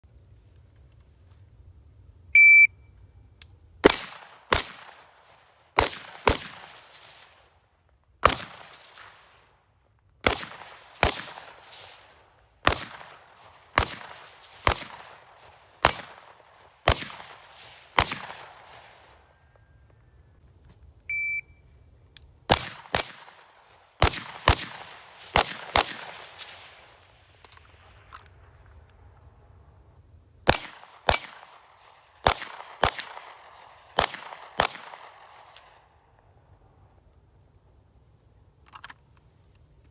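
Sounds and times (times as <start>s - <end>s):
shot timer beep: 2.4s - 2.8s, 21.1s - 21.6s
rifle shots with echo: 3.8s - 7.6s, 8.2s - 9.5s, 10.2s - 19.4s, 22.5s - 28.0s, 30.4s - 36.1s.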